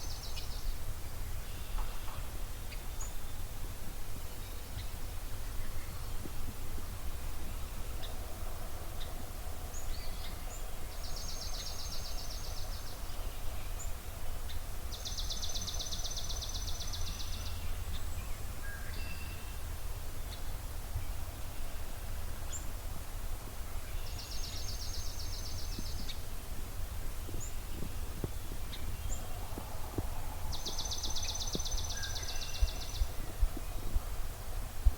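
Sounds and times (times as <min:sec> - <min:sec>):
songbird trill: 0:00.0 - 0:03.6, 0:04.2 - 0:06.3, 0:07.4 - 0:22.8, 0:23.6 - 0:26.4, 0:27.2 - 0:34.1
steady low rumble: 0:19.4 - 0:34.9
bird chirps: 0:30.5 - 0:33.8.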